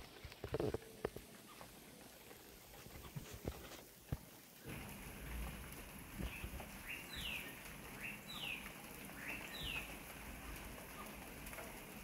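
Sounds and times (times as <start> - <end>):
bird calling: 6.2 - 11.2.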